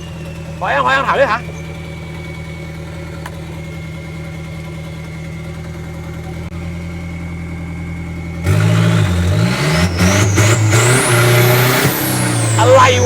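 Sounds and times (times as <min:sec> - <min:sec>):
high rising whine: 0:00.0 - 0:05.4, 0:09.6 - 0:13.0
car engine idling and revving: 0:00.0 - 0:13.0.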